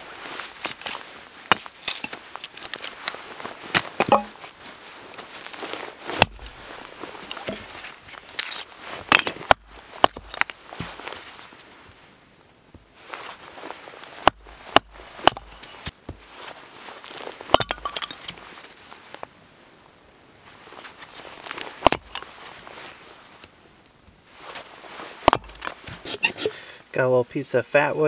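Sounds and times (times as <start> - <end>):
rustling: 0.0 - 26.8
firewood knocks and clunks: 0.6 - 2.9, 3.7 - 4.5, 6.1 - 11.3, 14.2 - 16.3, 17.5 - 18.4, 21.8 - 22.3, 25.2 - 26.4.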